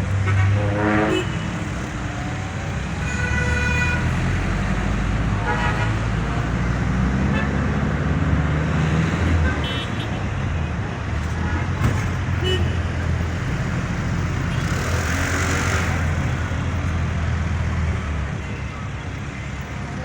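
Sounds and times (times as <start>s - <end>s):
traffic rumble: 0.0s - 20.0s
car horns honking: 0.2s - 1.9s, 3.0s - 4.4s, 5.3s - 6.2s, 9.3s - 10.4s, 12.3s - 13.2s.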